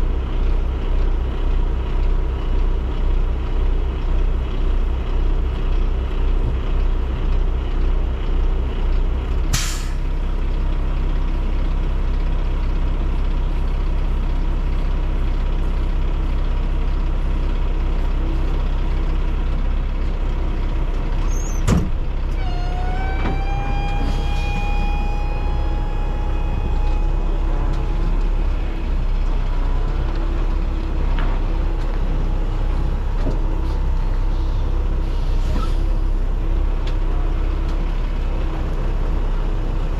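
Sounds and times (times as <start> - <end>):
diesel truck engine running: 0.0 - 39.9
rising whine: 22.3 - 35.3.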